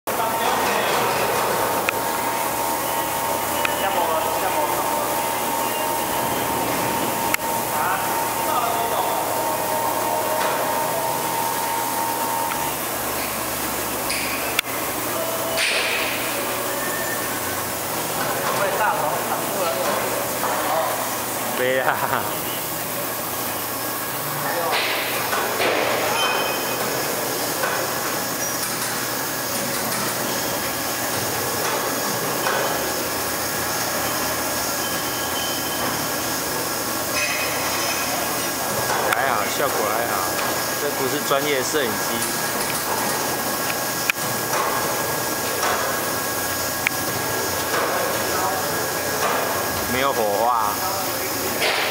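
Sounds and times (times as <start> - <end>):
lathe machine running: 0.1 - 21.6.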